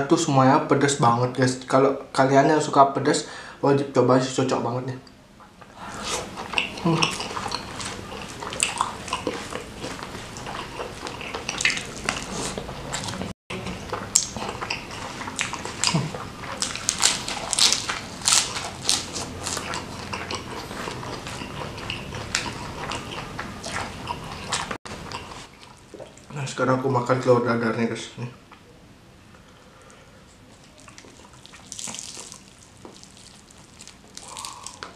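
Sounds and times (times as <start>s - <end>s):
chewing food: 5.9s - 26.4s, 29.8s - 34.9s.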